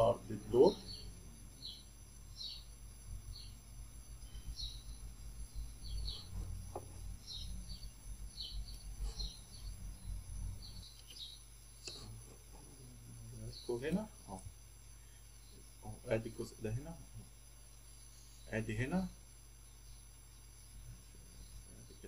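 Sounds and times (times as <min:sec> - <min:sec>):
faint high bird chirps: 0:00.0 - 0:03.6, 0:04.2 - 0:12.2
low steady hum: 0:00.0 - 0:22.0.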